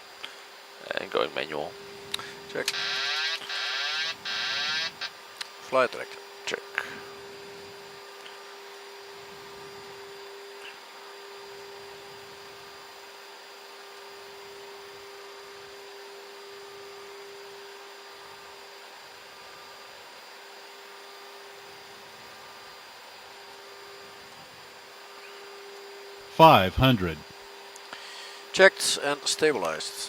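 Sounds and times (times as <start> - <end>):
electrical hum: 0.0 - 12.9, 24.9 - 27.4.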